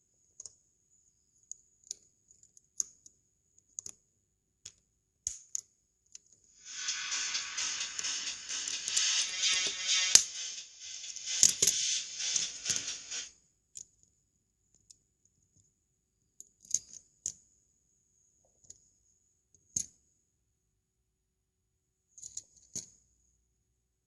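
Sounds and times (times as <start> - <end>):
background music: 6.6 - 13.3.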